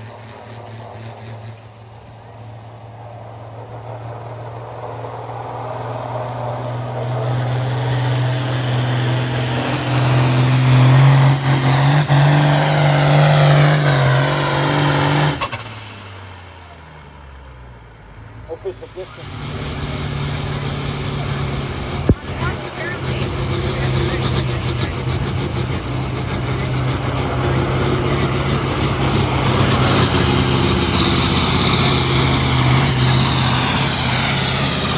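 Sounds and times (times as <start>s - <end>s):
tractor engine at full throttle: 0.0s - 34.9s.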